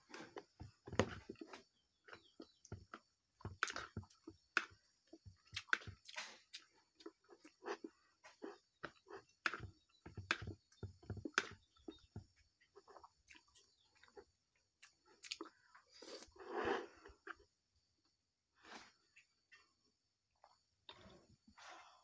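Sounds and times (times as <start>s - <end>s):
chewing and lip smacking: 1.4s - 16.2s.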